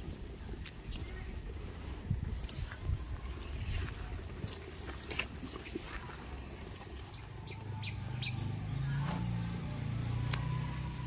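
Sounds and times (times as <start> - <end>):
low engine hum: 5.9 - 11.0.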